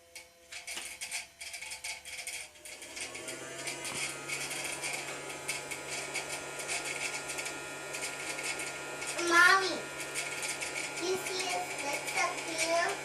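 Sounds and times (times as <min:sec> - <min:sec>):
toy vacuum motor humming: 0:00.0 - 0:13.0.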